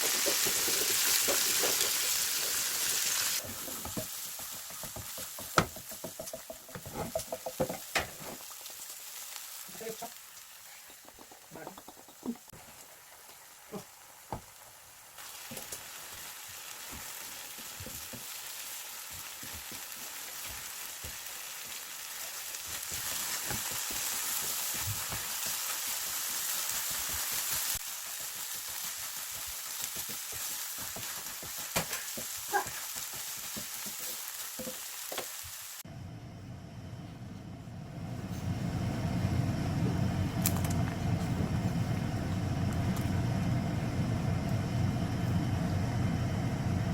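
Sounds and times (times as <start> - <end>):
food sizzling in a pan: 0.0 - 35.9
steady low hum: 35.9 - 46.9.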